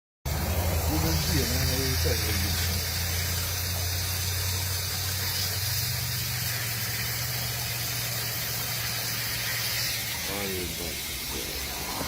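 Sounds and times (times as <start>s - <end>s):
vehicle engine running: 0.3s - 9.2s
even hiss: 0.3s - 12.0s.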